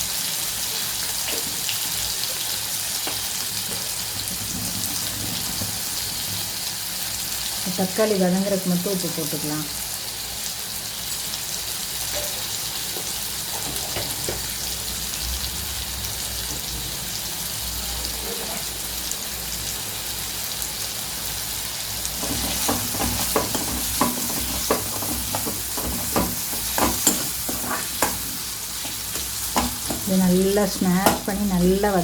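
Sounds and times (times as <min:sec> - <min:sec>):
vegetables sizzling in oil: 0:00.0 - 0:32.0
spatula scraping a pan: 0:03.1 - 0:06.7, 0:22.0 - 0:31.6.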